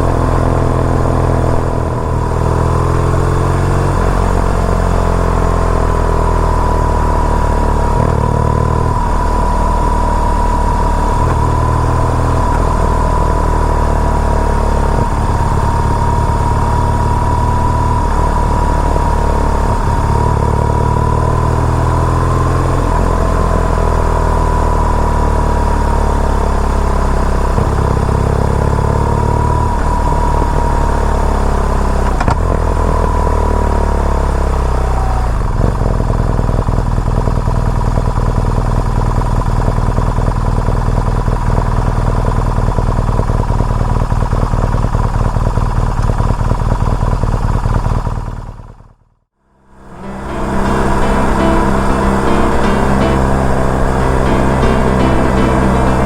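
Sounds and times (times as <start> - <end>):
steady high whine: 0.0 - 27.8
motorcycle engine under way: 0.0 - 49.0.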